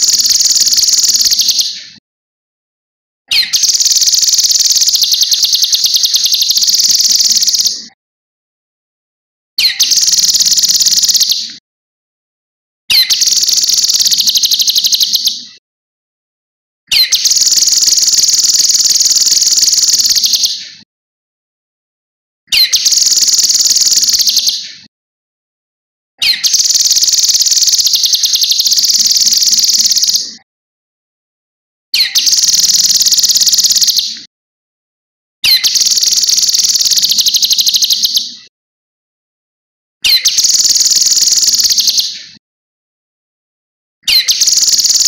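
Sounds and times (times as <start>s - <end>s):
songbird trilling: 0.0s - 1.7s, 3.3s - 7.8s, 9.6s - 11.4s, 12.9s - 15.4s, 16.9s - 20.6s, 22.5s - 24.6s, 26.2s - 30.2s, 32.0s - 34.1s, 35.4s - 38.3s, 40.1s - 42.1s, 44.1s - 45.0s.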